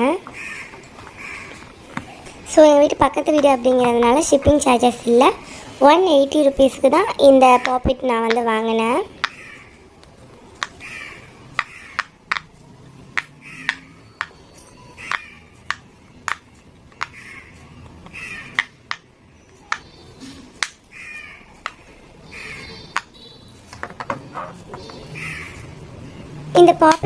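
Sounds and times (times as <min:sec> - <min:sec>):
fidget toy bubbles popping: 0:11.6 - 0:12.5.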